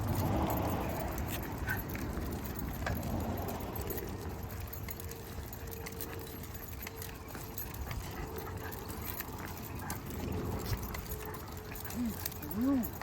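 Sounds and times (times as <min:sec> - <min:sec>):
dog tags and leash clips jingling: 0:00.0 - 0:13.0
steady low rumble: 0:00.0 - 0:13.0.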